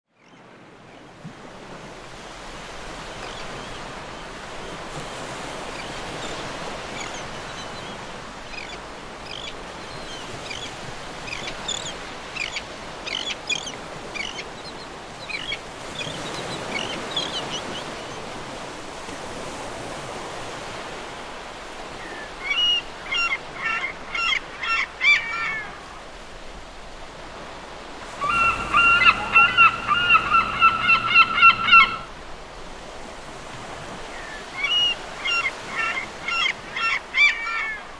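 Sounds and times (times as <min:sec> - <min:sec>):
surf washing: 0:00.4 - 0:37.9
seagulls calling: 0:03.2 - 0:18.4, 0:22.0 - 0:26.0, 0:28.2 - 0:32.1, 0:34.2 - 0:37.9.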